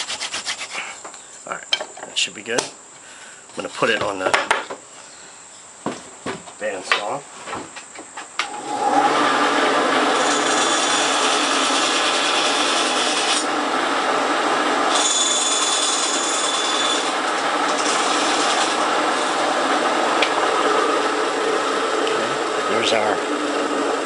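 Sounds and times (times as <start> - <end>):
bandsaw cutting wood: 8.5 - 21.4.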